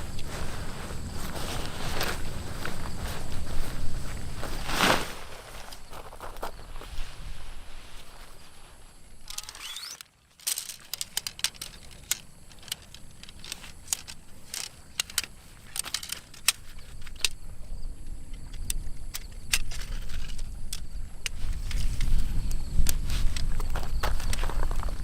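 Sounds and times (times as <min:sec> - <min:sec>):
small hard objects clicking: 0:09.2 - 0:17.4.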